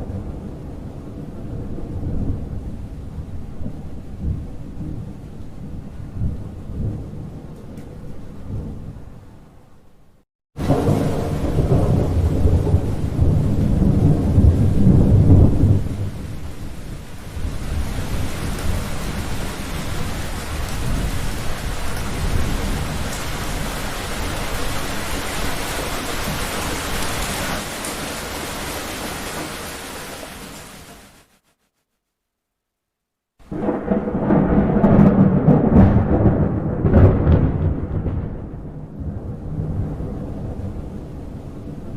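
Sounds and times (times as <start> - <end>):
thunder rumbling: 0.0 - 9.6, 10.6 - 30.7, 33.4 - 41.9
heavy rain hiss: 10.6 - 31.4.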